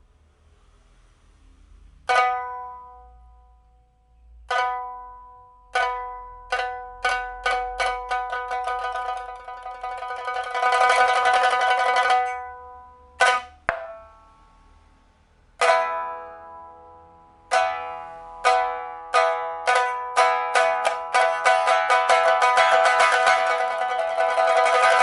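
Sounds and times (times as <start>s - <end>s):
lute strummed ringing chord: 4.5s - 14.8s
pipa tremolo: 4.5s - 14.8s, 15.6s - 25.0s
plucked pipa strokes: 5.7s - 14.4s, 17.5s - 25.0s.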